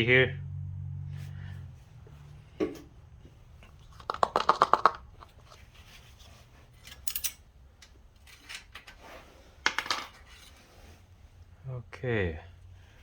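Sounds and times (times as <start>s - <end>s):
plastic cap clicking: 3.9s - 5.1s.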